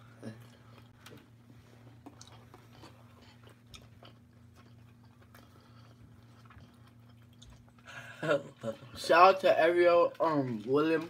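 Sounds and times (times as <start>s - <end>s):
faint chewing and biting: 0.1s - 9.0s.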